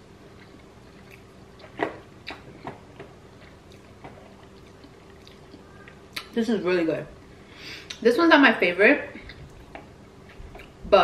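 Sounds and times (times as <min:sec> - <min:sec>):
faint steady hum: 0:00.0 - 0:11.0
wet chewing clicks and smacks: 0:03.4 - 0:06.3.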